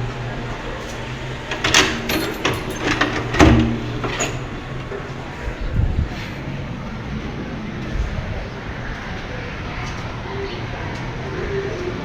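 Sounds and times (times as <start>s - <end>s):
steady low hum: 0.0s - 12.0s
knocks and clatters: 0.8s - 5.4s.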